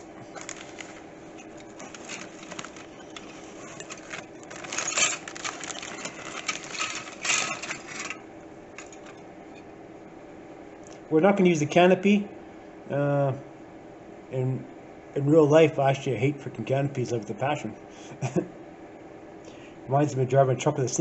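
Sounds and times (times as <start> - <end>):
plastic bags crinkling: 0.0 - 9.2
faint steady hum: 0.0 - 21.0.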